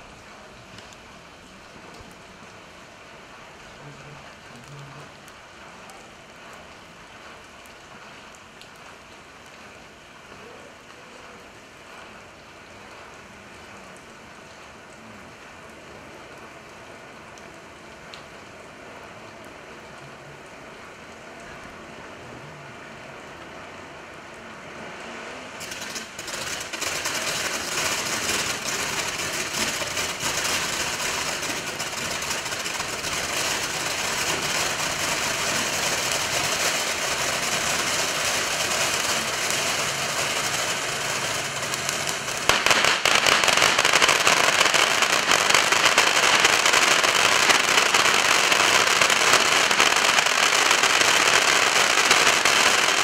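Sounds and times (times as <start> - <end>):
fireworks crackling and popping: 0.0 - 13.1, 25.4 - 53.0.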